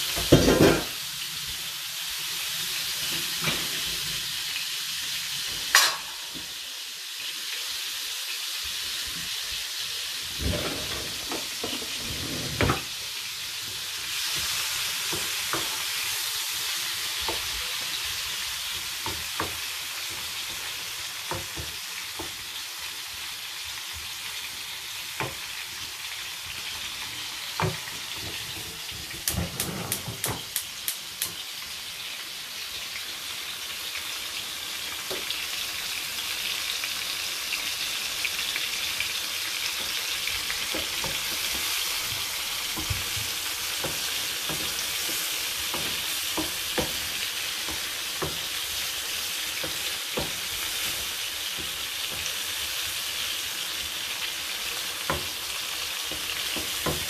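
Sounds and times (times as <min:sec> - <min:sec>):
prawns sizzling in a frying pan: 0:00.0 - 0:57.0
wooden spoon knocking on a pan: 0:19.0 - 0:19.6, 0:21.3 - 0:22.4, 0:42.8 - 0:48.5, 0:49.6 - 0:51.0, 0:56.1 - 0:57.0.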